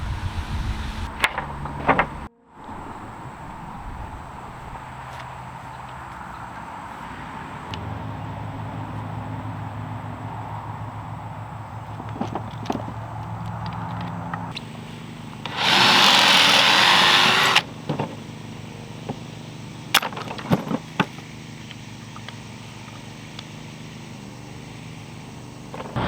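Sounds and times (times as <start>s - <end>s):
power tool running: 14.6s - 19.0s.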